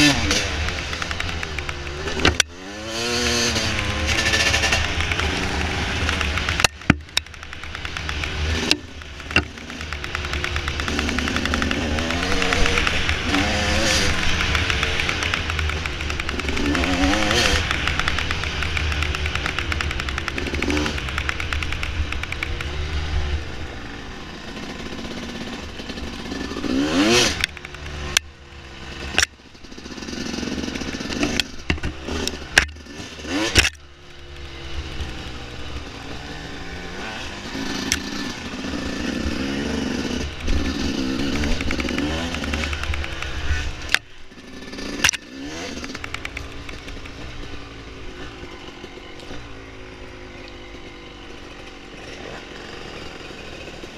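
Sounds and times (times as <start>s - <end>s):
dirt bike engine revving: 0.0s - 53.9s
sharp knocks and clatter: 0.2s - 22.8s, 29.0s - 33.8s, 39.4s - 48.4s.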